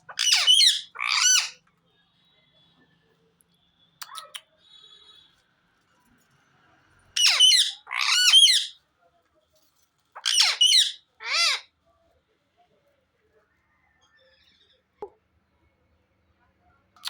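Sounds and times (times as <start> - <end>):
parrot calling harshly: 0.1 - 1.6, 7.2 - 8.8, 10.2 - 11.7.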